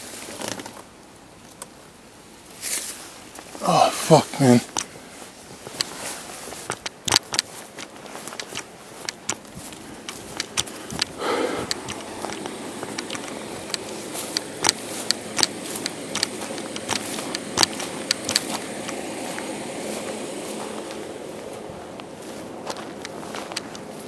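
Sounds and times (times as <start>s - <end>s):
steady background rush: 6.6s - 24.0s.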